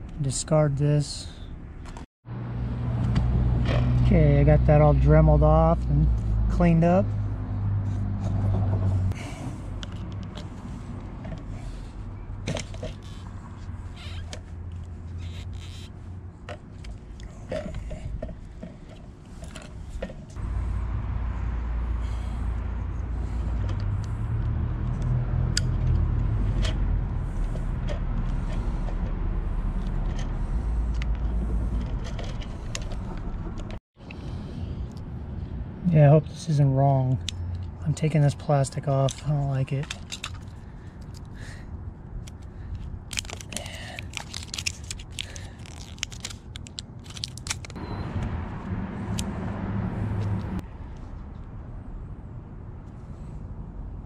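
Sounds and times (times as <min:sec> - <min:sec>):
steady low rumble: 0:02.3 - 0:38.0.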